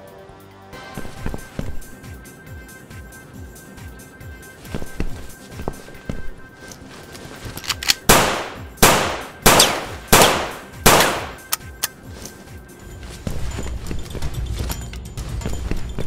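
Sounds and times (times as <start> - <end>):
pistol gunshots echoing: 8.0 - 11.6.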